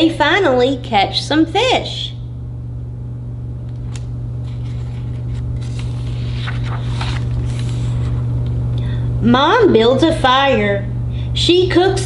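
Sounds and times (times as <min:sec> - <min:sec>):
steady low hum: 0:00.0 - 0:12.0
paper page rustling: 0:04.4 - 0:08.3.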